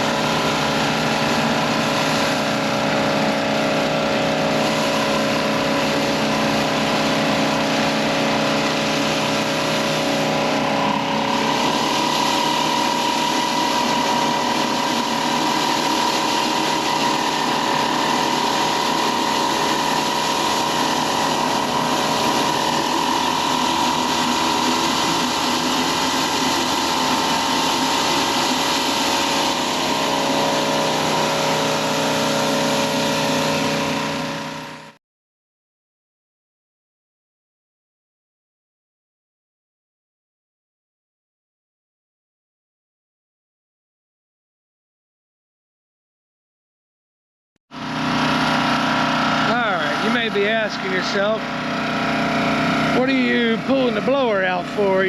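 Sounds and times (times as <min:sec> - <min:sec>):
high steady whine: 0:00.0 - 0:35.0, 0:47.7 - 0:55.0
pressure washer engine running: 0:00.0 - 0:35.0, 0:47.7 - 0:55.0
high-pressure spray hissing on concrete: 0:04.5 - 0:34.2.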